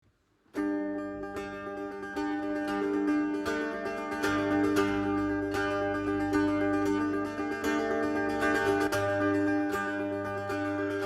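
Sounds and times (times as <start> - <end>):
plucked string instruments: 0.2 - 11.0.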